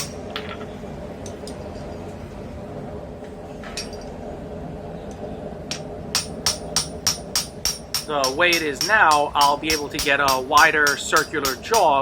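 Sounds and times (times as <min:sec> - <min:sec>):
hammer striking hot steel: 0:00.0 - 0:00.3, 0:05.7 - 0:12.0
steady hum: 0:00.0 - 0:12.0.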